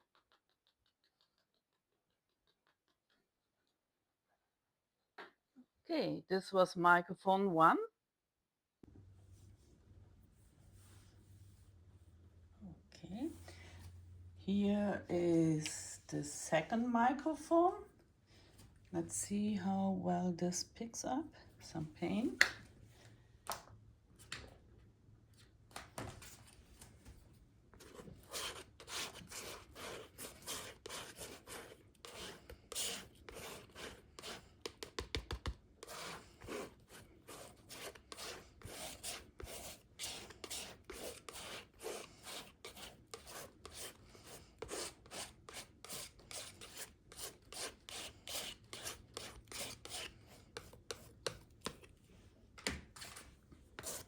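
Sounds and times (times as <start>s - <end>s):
brush scraping paint on paper: 27.8s - 52.0s, 52.9s - 54.0s.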